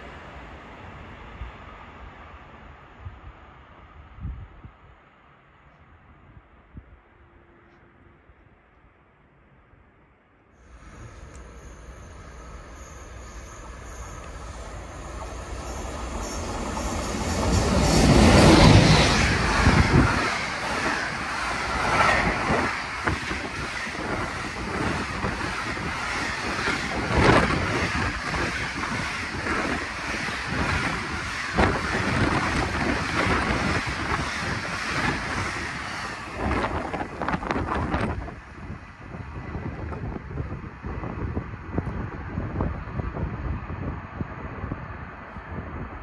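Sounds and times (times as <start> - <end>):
train rumble and rail noise: 0.0 - 46.0
wind buffeting microphone: 14.6 - 46.0.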